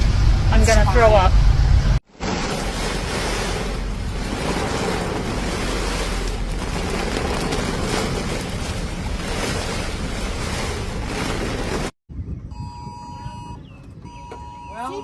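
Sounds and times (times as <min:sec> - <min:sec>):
storm wind buffeting microphone: 0:02.9 - 0:14.2.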